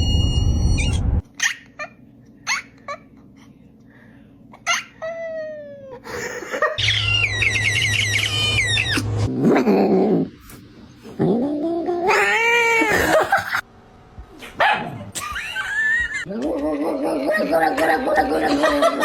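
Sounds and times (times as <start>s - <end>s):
cat chirping and meowing: 6.8s - 9.2s.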